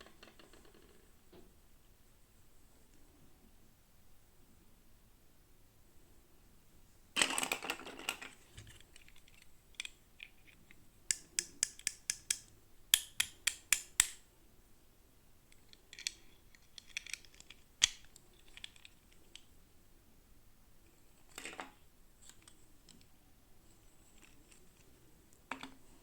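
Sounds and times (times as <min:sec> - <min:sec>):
sharp plastic clicks and taps: 0:11.1 - 0:14.2.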